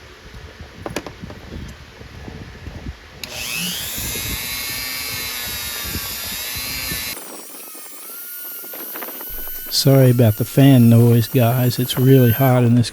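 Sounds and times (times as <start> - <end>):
fan hum: 0.0 - 12.9
power tool high whine: 3.2 - 12.9.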